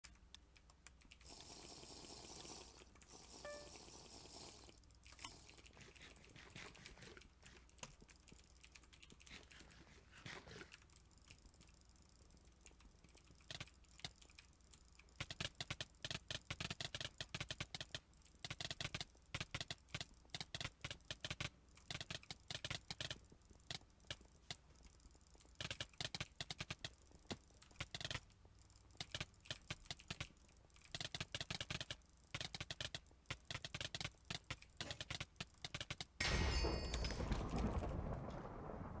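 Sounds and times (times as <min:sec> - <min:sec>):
fast mouse button clicks: 0:29.0 - 0:36.2.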